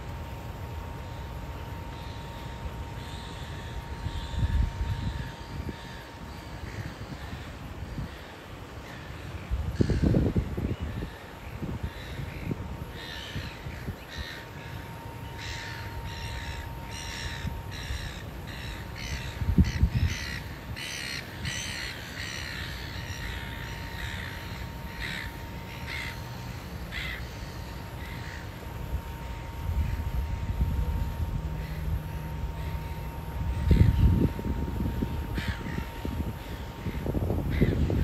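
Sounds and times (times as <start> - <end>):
faint steady whine: 0.0 - 38.0
bird calling: 1.5 - 38.0
wind rumble on microphone: 3.6 - 8.3, 8.9 - 14.4, 15.4 - 25.3, 28.0 - 38.0.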